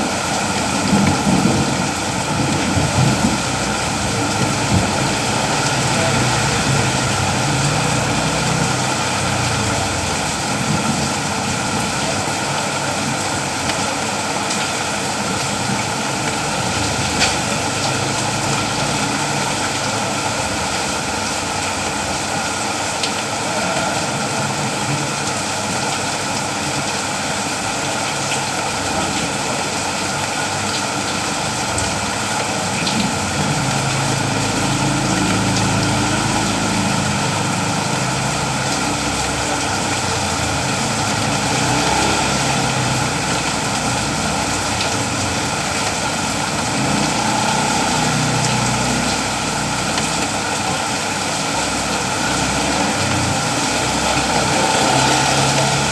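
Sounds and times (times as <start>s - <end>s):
steady rain hiss: 0.0s - 55.9s.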